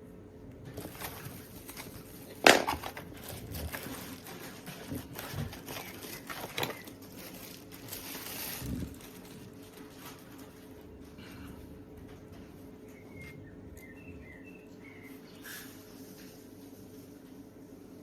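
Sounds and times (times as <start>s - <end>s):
handling knocks and clicks: 0.6s - 7.0s
rustling: 0.8s - 10.8s.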